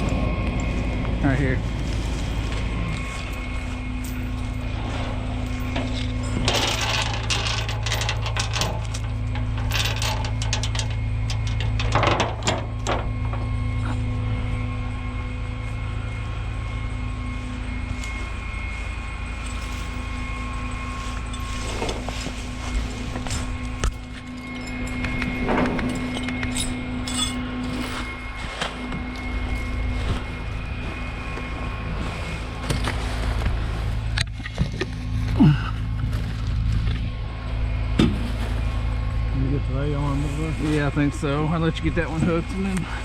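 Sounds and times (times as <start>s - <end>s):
crunching and clattering: 0.0s - 14.1s, 17.9s - 31.8s
tow truck engine running: 0.0s - 43.0s.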